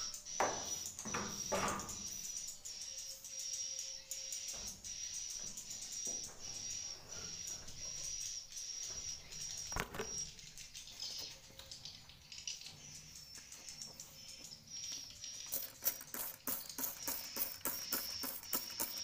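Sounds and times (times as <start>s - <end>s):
swiftlets chirping: 13.2s - 19.0s
rapid clicking: 15.5s - 19.0s.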